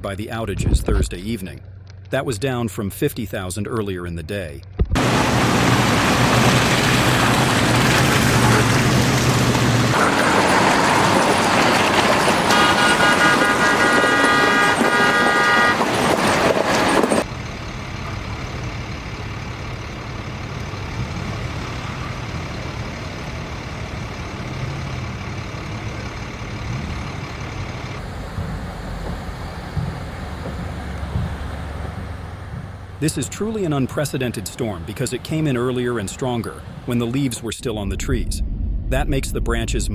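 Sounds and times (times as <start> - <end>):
road vehicle noise: 0.0 - 2.6, 4.3 - 39.7
vehicle horn: 12.2 - 17.2.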